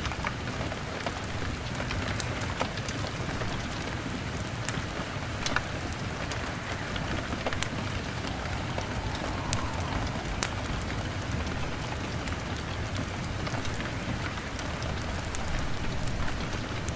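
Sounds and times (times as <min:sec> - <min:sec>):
rain on a window pane: 0:00.0 - 0:07.7, 0:11.5 - 0:16.9
wood fire crackling: 0:01.4 - 0:16.9.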